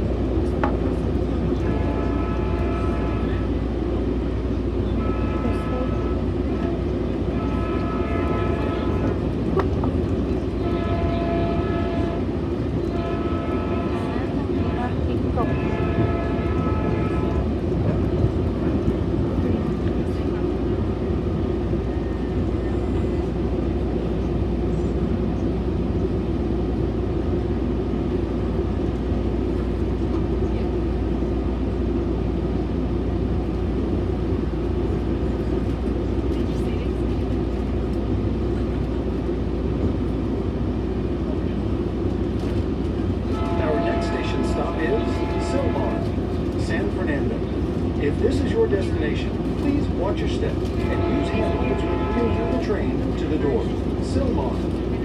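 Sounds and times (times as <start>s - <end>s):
train wheels rumbling on rail: 0.0s - 55.0s
train horn blasts: 1.6s - 3.6s, 4.9s - 9.3s, 10.6s - 17.8s, 43.2s - 46.5s, 50.8s - 53.2s.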